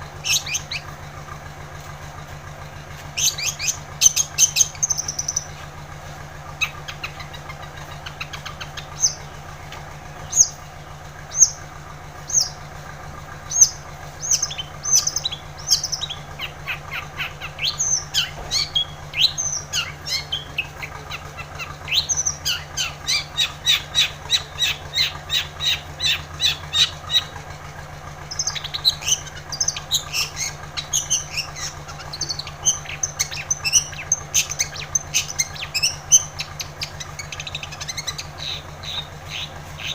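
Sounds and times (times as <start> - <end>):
steady low hum: 0.0 - 39.9
shrike singing: 0.2 - 1.0, 3.1 - 5.7, 6.5 - 12.6, 13.4 - 27.4, 28.2 - 39.9.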